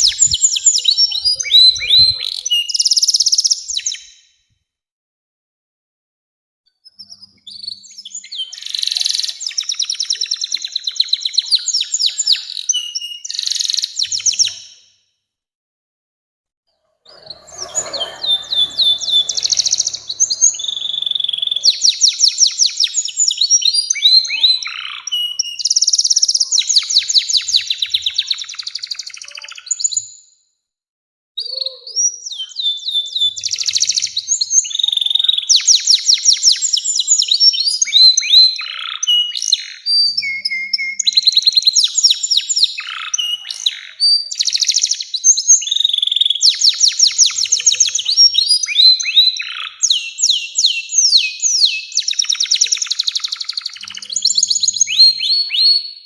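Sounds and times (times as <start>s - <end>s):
canary singing trills: 0.0s - 4.1s, 16.8s - 29.9s, 31.5s - 36.4s, 37.8s - 56.0s.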